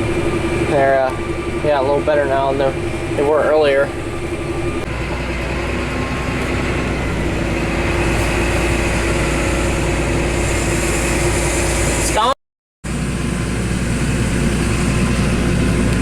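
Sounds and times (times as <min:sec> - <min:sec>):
deep low hum: 0:00.0 - 0:12.1
machinery engine humming: 0:00.0 - 0:16.0.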